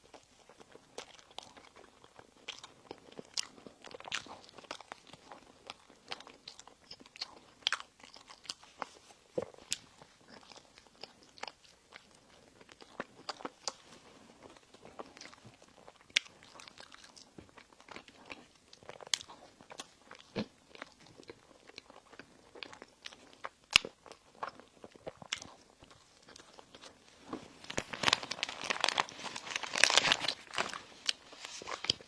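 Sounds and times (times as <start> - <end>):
chewing and biting bread: 0.0 - 32.0
crisp crackling: 23.1 - 32.0.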